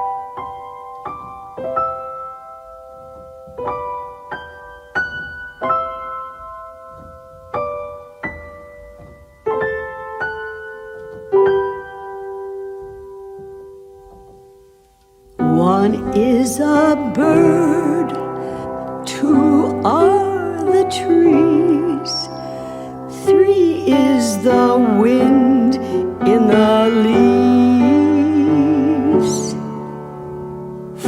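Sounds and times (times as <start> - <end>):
solo piano chords: 0.0 - 31.0.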